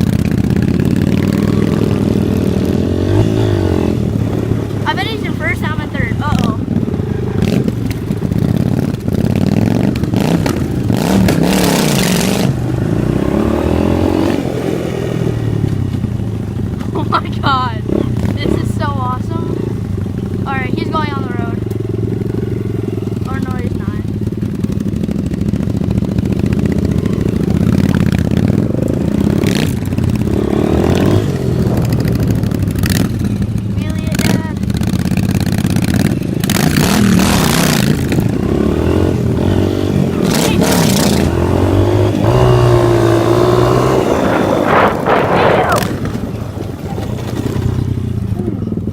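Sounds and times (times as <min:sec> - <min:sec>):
motorcycle engine revving: 0:00.0 - 0:48.9
loud rushing noise: 0:40.1 - 0:47.0.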